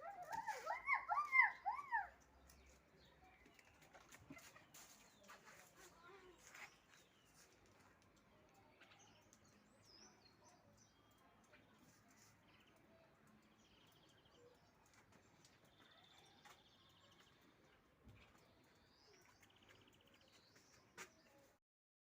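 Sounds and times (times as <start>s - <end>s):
faint high bird chirp: 8.4s - 21.6s.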